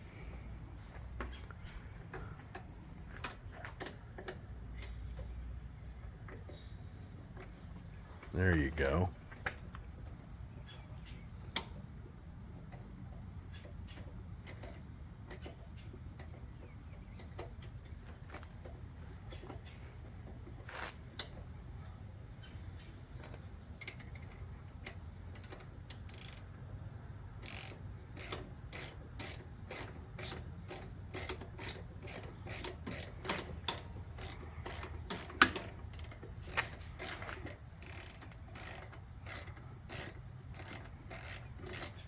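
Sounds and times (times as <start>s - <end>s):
socket ratchet clicking: 25.4s - 26.5s, 27.4s - 42.0s.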